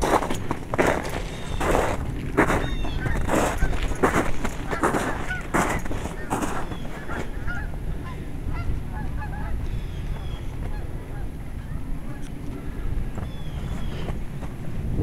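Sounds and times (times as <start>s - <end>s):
geese honking: 0.0s - 14.2s
wind rumble on microphone: 0.0s - 15.0s.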